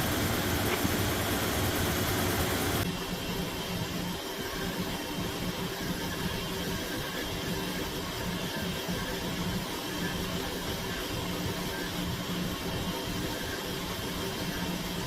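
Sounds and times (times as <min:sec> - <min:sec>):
electric motor humming: 0:00.0 - 0:02.8.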